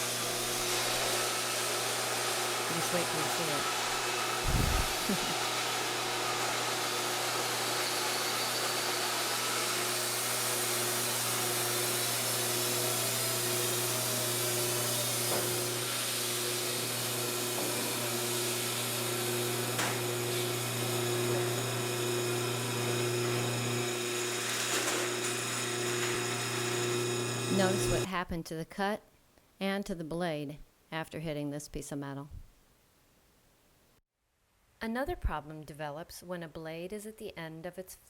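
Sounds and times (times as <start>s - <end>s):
band sawmill sawing log: 0.0s - 28.1s.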